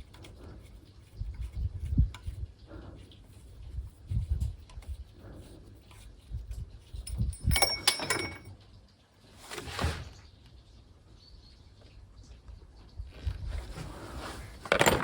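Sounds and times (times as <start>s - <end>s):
metallic clinking and rattling: 6.9s - 8.6s, 14.6s - 15.0s.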